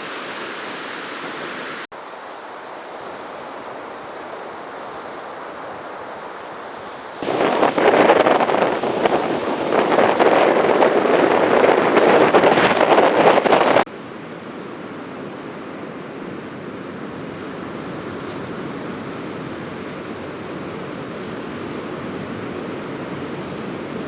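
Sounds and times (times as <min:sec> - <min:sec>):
steady rushing noise: 0:00.0 - 0:13.9
wind buffeting microphone: 0:05.7 - 0:13.9.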